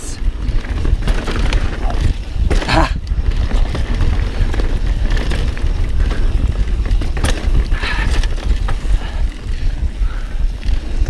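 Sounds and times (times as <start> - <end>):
bike rattling: 0.0 - 11.0
bike tyres rumbling on trail: 0.0 - 11.0
wind buffeting microphone: 0.0 - 11.0
bike knocking on rocks: 0.5 - 9.1.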